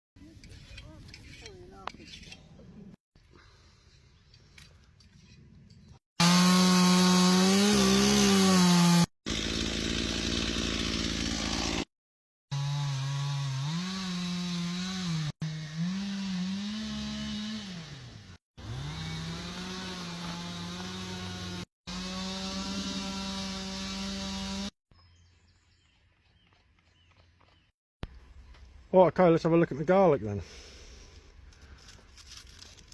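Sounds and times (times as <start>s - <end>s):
chainsaw cutting wood: 6.2s - 11.9s, 12.5s - 24.8s.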